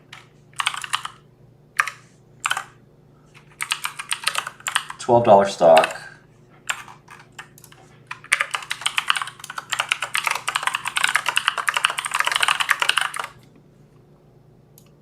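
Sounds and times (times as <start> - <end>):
fast typing on a keyboard: 0.1 - 1.2, 1.8 - 2.7, 3.4 - 5.0, 5.7 - 6.0, 6.7 - 13.4.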